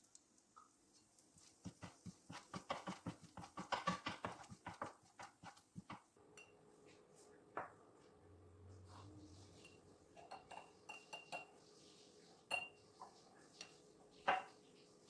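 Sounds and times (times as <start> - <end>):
knife chopping on cutting board: 1.7 - 6.0.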